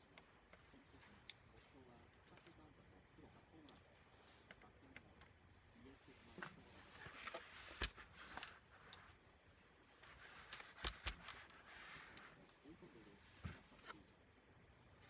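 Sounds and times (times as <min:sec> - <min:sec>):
laptop parts clicking and scraping: 0:05.9 - 0:09.3, 0:10.0 - 0:12.4, 0:13.4 - 0:14.1.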